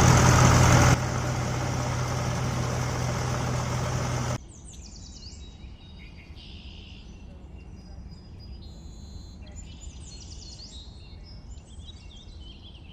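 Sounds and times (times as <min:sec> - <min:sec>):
low background rumble: 0:00.0 - 0:04.4.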